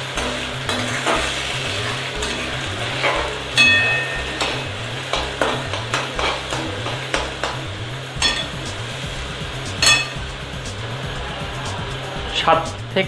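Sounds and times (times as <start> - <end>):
metal spatula scraping pan: 0.0 - 7.6
onions sizzling in oil: 0.0 - 13.0
spatula knocking on pan: 3.0 - 8.8, 9.8 - 10.3.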